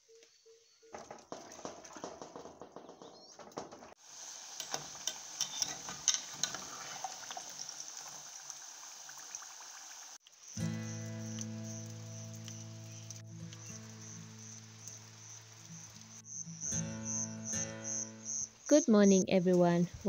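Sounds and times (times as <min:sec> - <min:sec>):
plantain frying in hot oil: 0:03.5 - 0:16.3.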